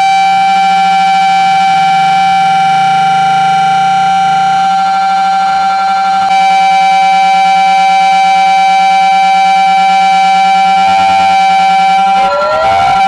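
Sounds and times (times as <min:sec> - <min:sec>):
megaphones blaring shrill tones: 0:00.0 - 0:13.0.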